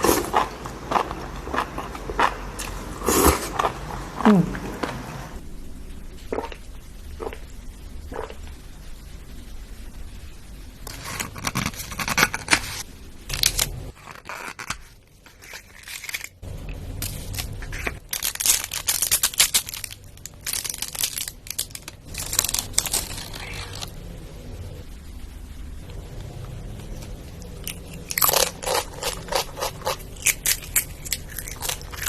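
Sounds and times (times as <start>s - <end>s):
crisp eating crackling: 0.0s - 5.4s, 13.3s - 24.7s, 25.8s - 32.0s.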